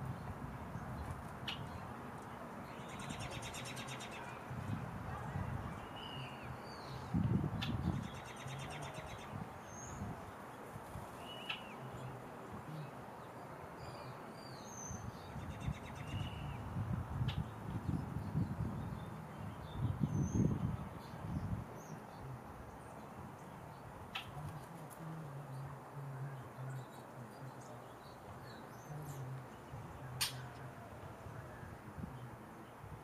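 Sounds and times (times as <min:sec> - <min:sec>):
songbirds chirping: 0:00.0 - 0:33.0.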